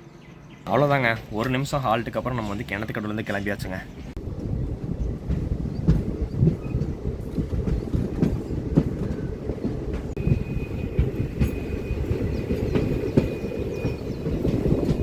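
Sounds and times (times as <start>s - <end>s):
train rumble: 0.6s - 15.0s
wheels clicking over rail joints: 4.2s - 15.0s.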